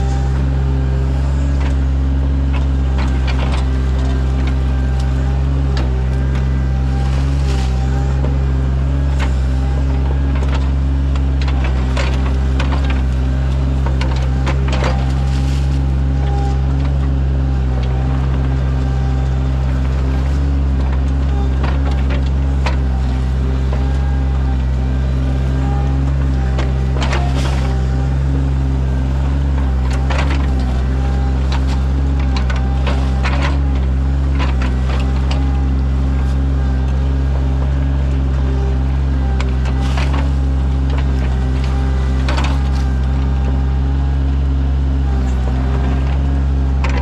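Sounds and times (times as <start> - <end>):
excavator diesel engine running: 0.0 - 47.0
digging knocks and clatters: 0.1 - 47.0.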